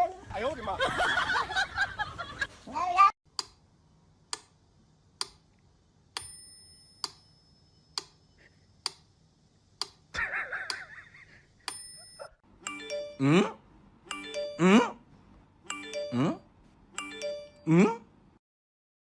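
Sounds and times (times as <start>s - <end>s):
bell-like chime: 11.7s - 13.4s, 14.1s - 14.8s, 15.7s - 16.4s, 17.0s - 17.7s
wavering voice-like sound: 13.0s - 13.6s, 14.3s - 15.0s, 16.0s - 16.4s, 17.6s - 18.1s.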